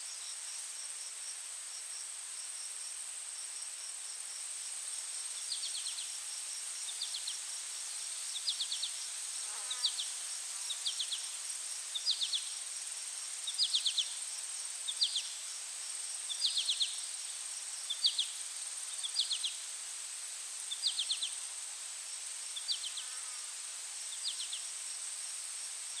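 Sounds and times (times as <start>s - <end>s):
cricket-like chirps: 0.0s - 26.0s.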